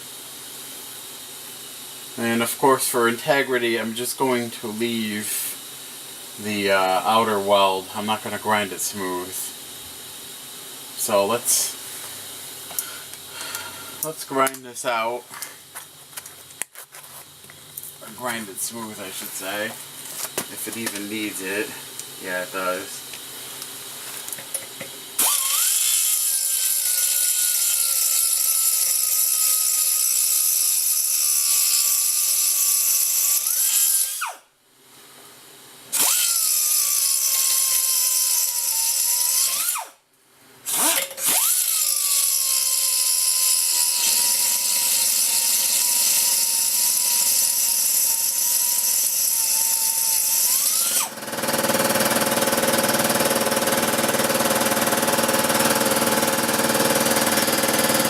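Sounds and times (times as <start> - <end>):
steady broad noise: 20.5 - 23.1
power grinder whining: 24.2 - 34.4, 35.9 - 39.9, 40.7 - 58.0.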